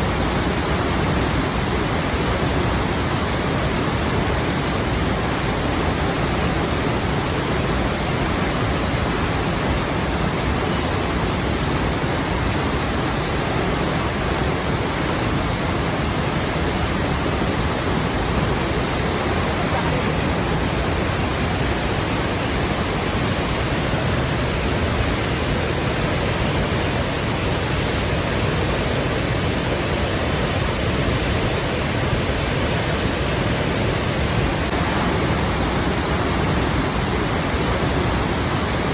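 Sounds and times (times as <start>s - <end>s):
water rushing: 0.0s - 38.9s.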